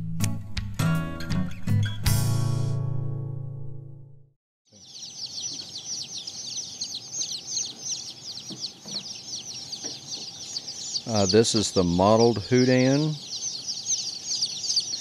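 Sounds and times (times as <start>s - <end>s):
chicks peeping: 4.7s - 15.0s.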